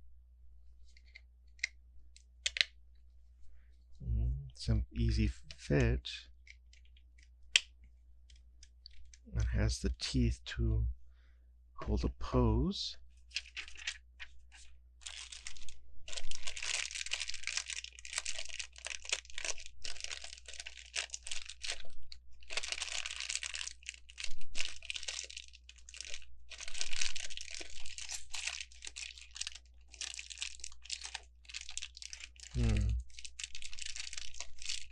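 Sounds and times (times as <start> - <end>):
plastic bag crinkling: 13.3 - 34.9.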